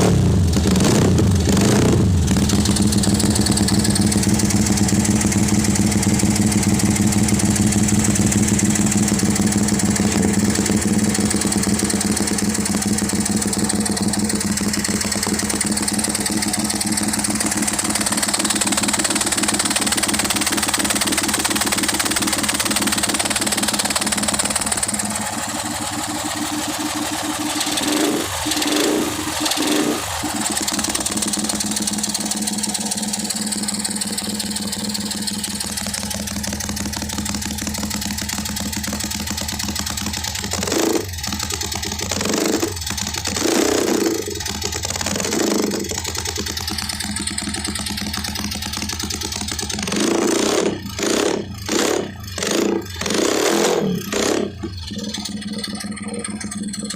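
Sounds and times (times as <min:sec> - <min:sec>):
engine throttle blips: 0:00.0 - 0:56.9
motorcycle engine idling: 0:00.0 - 0:56.9.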